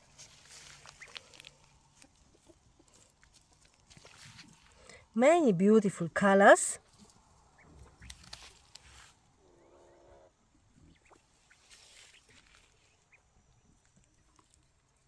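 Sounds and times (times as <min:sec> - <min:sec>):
low poultry call: 0:09.4 - 0:11.2.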